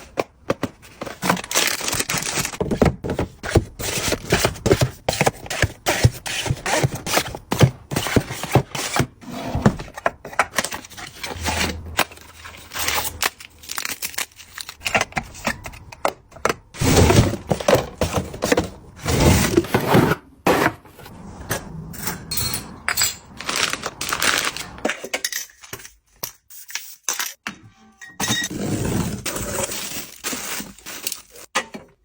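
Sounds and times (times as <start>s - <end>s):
packaging crinkling and tearing: 1.2s - 2.6s, 12.0s - 14.9s, 23.4s - 24.8s.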